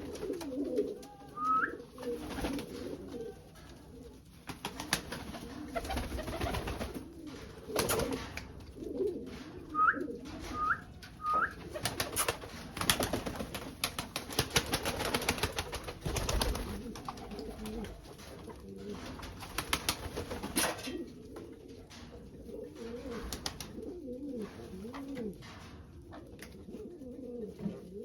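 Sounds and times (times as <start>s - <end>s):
pigeons cooing: 0.0s - 13.2s, 14.8s - 19.3s, 20.6s - 28.0s.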